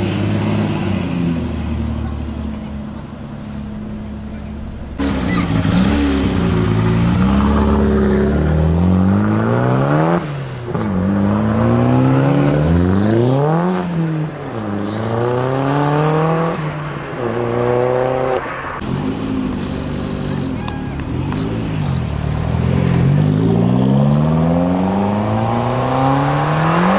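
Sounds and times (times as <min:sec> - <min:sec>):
car engine accelerating hard: 0:00.0 - 0:26.9.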